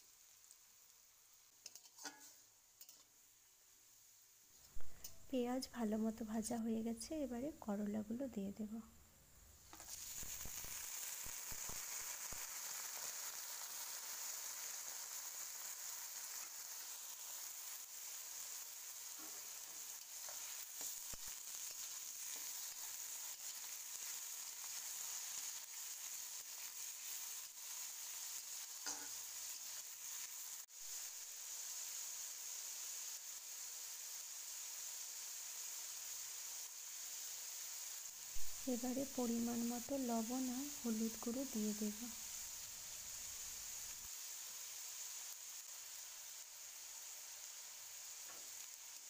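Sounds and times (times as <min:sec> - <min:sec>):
vegetables sizzling in hot oil: 0:00.0 - 0:49.0
spatula scraping a wok: 0:01.6 - 0:03.2, 0:09.7 - 0:13.2, 0:15.7 - 0:30.4.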